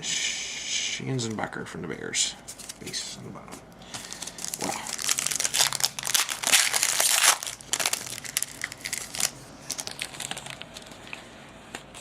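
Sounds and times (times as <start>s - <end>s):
foil wrapper tearing and crinkling: 4.0s - 11.0s.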